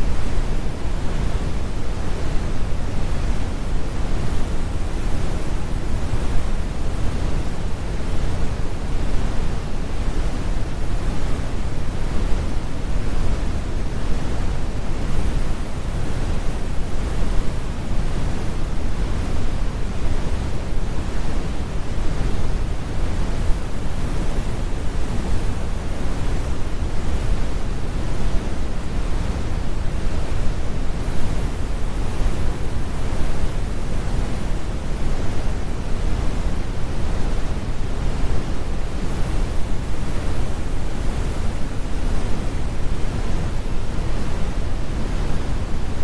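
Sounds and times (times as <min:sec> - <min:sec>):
brown noise: 0:00.0 - 0:46.0.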